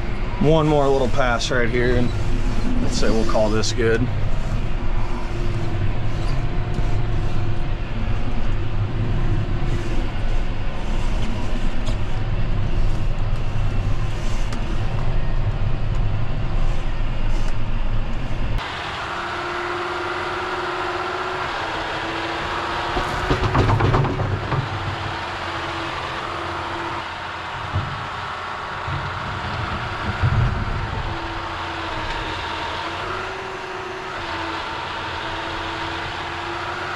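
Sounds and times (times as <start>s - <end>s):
thin steady whine: 0.0s - 19.2s
tractor diesel engine rumbling: 0.0s - 36.9s.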